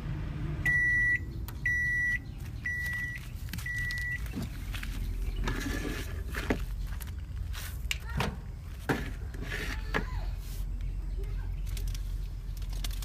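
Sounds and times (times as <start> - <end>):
microwave oven beep: 0.6 - 4.2.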